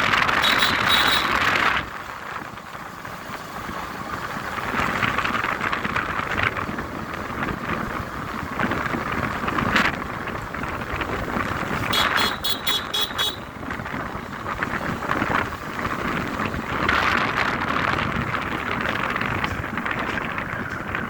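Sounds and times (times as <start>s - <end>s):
outdoor street noise: 0.0s - 21.0s
high-pitched toots: 0.4s - 1.4s.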